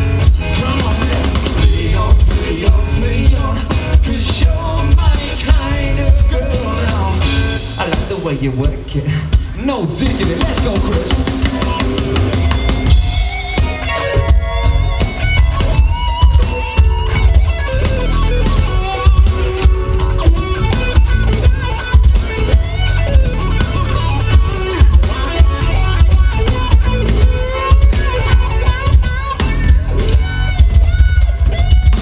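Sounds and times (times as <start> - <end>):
bass guitar: 0.0 - 32.0
drum kit beat: 0.0 - 32.0
electric guitar solo: 11.4 - 32.0.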